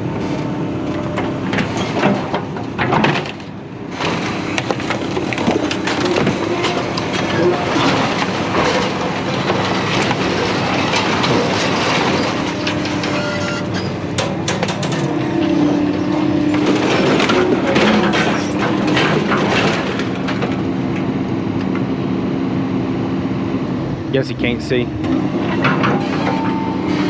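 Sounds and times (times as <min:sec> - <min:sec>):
steady engine hum: 0:00.0 - 0:27.0
scrap metal knocks and clatters: 0:04.0 - 0:20.7.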